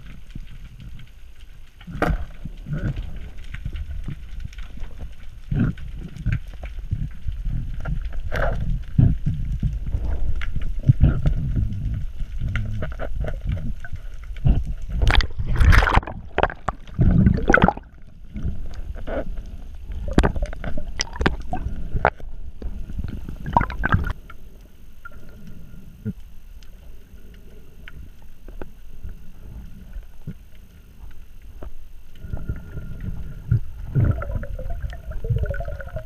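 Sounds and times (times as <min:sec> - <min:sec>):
sea water sloshing and gurgling: 0:00.0 - 0:36.0
water splashes: 0:13.2 - 0:22.2, 0:22.9 - 0:24.3, 0:32.3 - 0:36.0.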